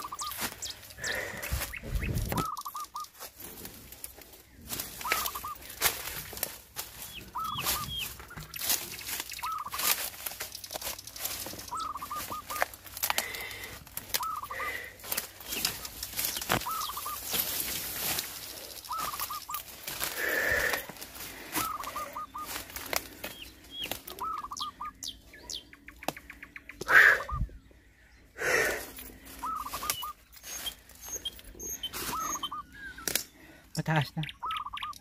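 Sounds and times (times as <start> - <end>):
bird calling: 0.0 - 35.0
rustling: 3.0 - 24.2.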